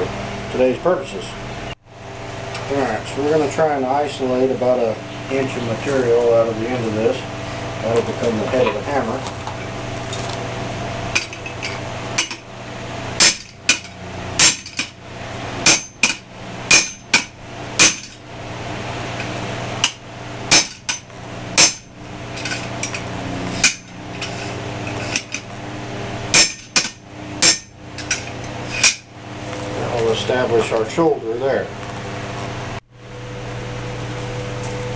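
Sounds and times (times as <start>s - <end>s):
steady hum: 0.0s - 34.9s
hammer striking metal bar: 12.2s - 12.4s, 13.2s - 15.0s, 15.6s - 18.2s, 19.8s - 22.6s, 23.6s - 23.9s, 26.3s - 29.1s.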